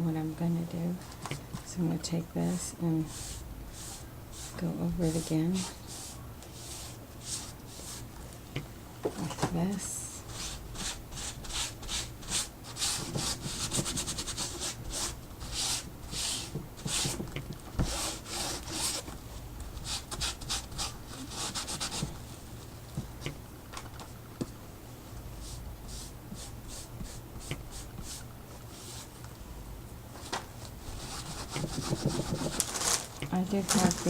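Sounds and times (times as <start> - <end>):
art tool scratching surface: 17.8 - 19.0, 30.9 - 32.7.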